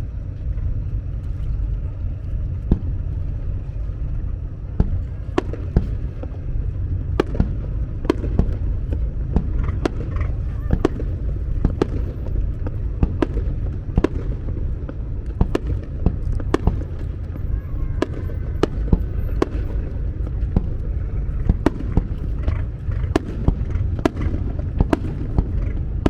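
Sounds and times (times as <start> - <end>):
steady low rumble: 0.0 - 26.0
fireworks bangs: 4.6 - 26.0.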